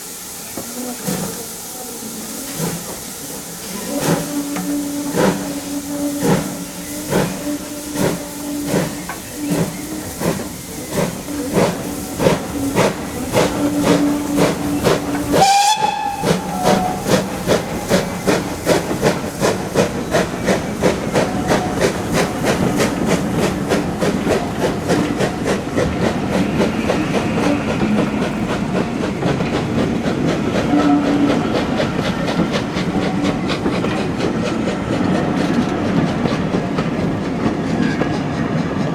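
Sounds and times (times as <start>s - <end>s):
steam locomotive exhaust beats: 0.0s - 38.9s
steam whistle blast: 3.7s - 18.1s, 30.7s - 31.7s.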